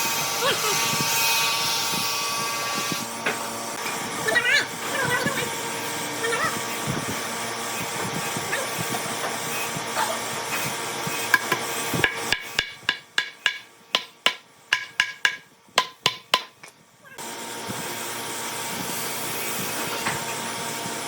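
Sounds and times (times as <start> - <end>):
workshop noise: 0.0 - 21.0
sharp ringing knocks: 12.1 - 16.6.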